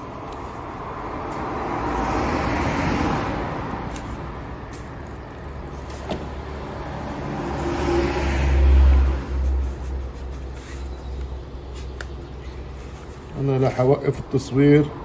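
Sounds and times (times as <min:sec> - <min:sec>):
vehicle passing by: 0:00.5 - 0:10.8.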